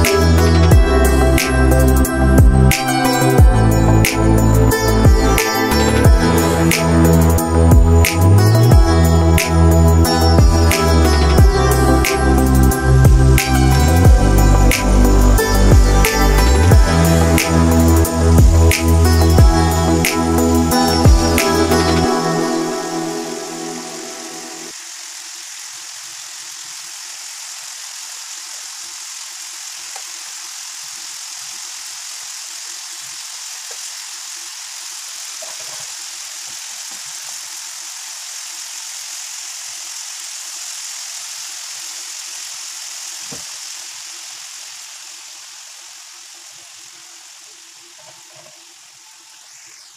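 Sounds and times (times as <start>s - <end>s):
food sizzling in a skillet: 0.0s - 49.9s.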